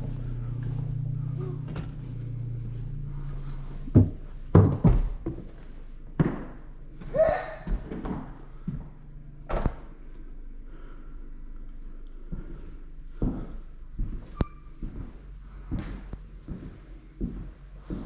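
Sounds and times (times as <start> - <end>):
door squeak: 14.3 - 14.8.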